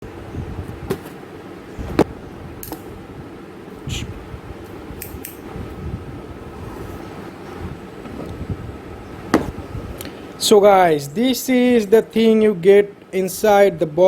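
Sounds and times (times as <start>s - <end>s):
low background noise: 0.0s - 14.0s.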